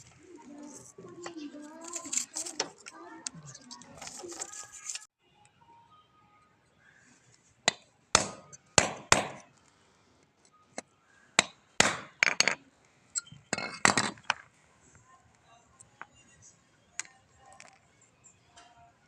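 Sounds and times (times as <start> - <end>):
hammer striking metal: 7.7 - 9.4, 11.4 - 12.6.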